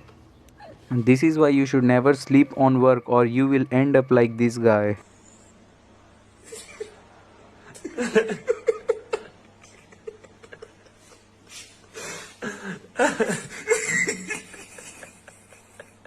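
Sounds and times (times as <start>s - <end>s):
people laughing: 7.6s - 11.6s, 12.4s - 16.0s.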